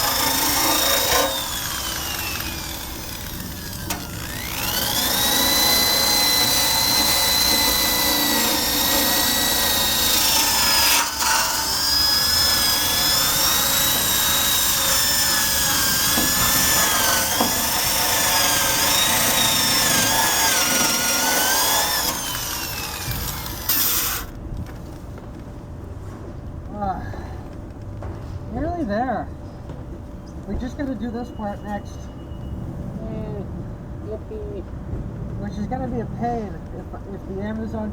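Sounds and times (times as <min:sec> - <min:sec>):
drill wire brush on steel: 0:00.0 - 0:24.3.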